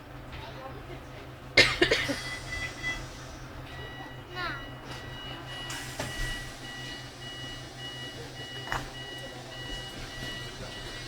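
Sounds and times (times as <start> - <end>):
low steady tram hum: 0.0 - 11.0
two-pitch electronic door beeping: 2.3 - 3.1, 3.7 - 11.0.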